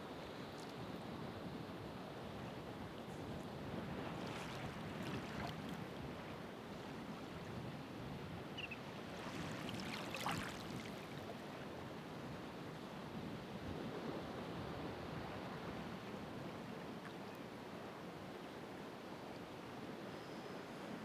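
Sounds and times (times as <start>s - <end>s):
ocean waves washing onto shore: 2.8s - 13.4s.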